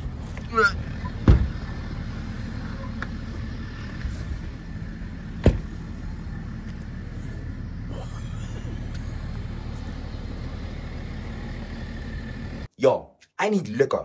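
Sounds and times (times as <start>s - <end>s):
car engine running: 0.0s - 12.7s
sharp thump: 5.4s - 5.7s.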